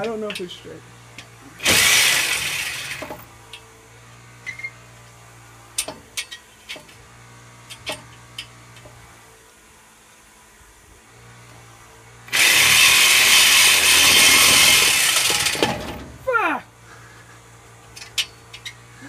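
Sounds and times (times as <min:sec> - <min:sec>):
loud burst of noise: 0:01.6 - 0:03.2.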